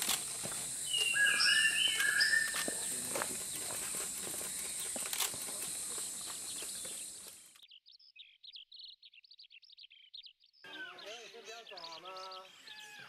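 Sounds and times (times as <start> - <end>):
high bird chirps: 0.7 - 13.0
scattered clicks: 2.0 - 6.0.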